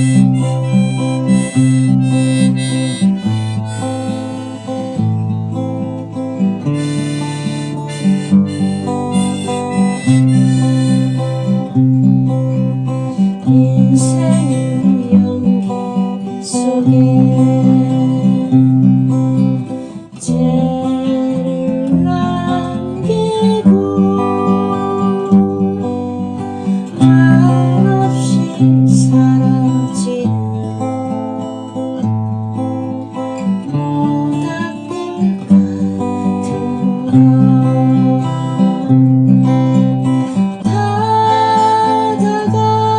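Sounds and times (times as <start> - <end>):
sliding held melody notes: 0.0 - 30.3
acoustic guitar strumming: 0.0 - 42.9.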